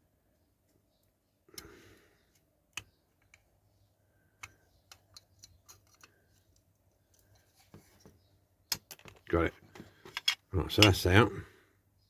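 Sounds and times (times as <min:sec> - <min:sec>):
small tool clicking on model car: 0:04.4 - 0:07.3.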